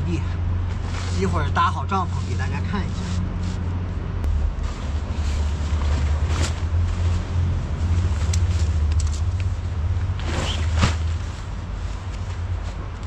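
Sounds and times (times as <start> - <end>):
large vehicle engine rumbling: 0.0 - 13.0
rustles and clicks: 2.2 - 13.0.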